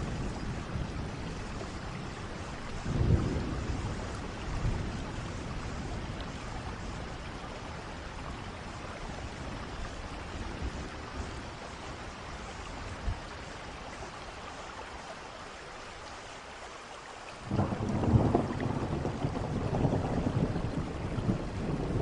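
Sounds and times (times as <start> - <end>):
thunder rumbling: 0.0 - 7.4, 17.4 - 22.0
steady rain falling: 0.0 - 22.0.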